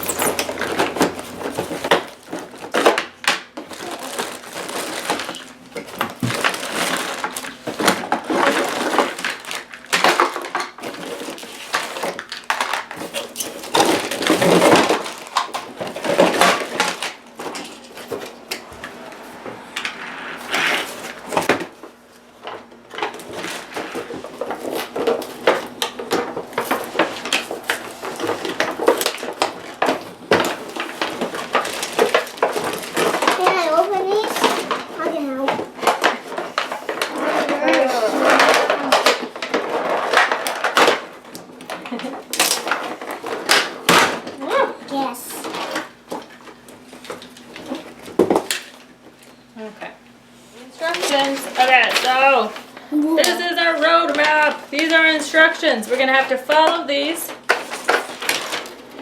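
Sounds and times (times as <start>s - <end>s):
packaging crinkling and rustling: 0.0s - 19.4s, 20.0s - 49.4s, 50.6s - 59.0s.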